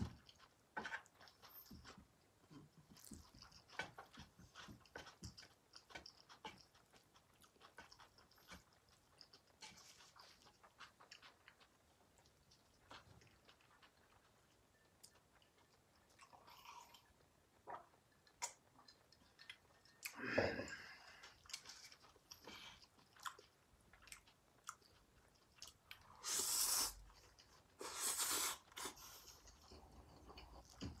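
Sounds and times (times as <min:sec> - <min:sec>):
soft chewing: 0:00.0 - 0:31.0
noodle slurps: 0:26.1 - 0:27.1, 0:27.8 - 0:29.2.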